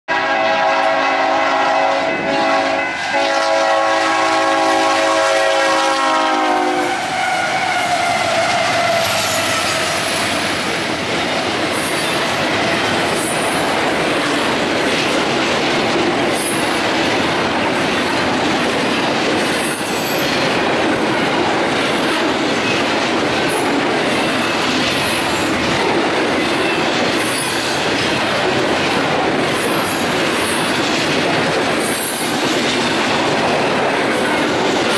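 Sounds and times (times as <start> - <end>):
locomotive air horn chord: 0.1 - 10.0
train cars clickety-clack on rails: 0.1 - 34.9
high wheel squeals: 7.0 - 10.4.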